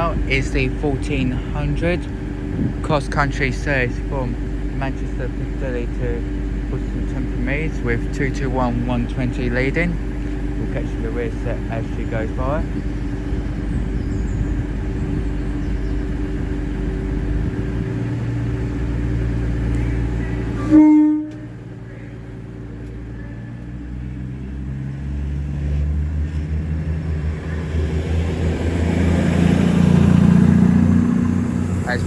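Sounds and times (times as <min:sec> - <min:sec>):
diesel train engine rumble: 0:00.0 - 0:32.0
train horn toot: 0:19.9 - 0:22.2.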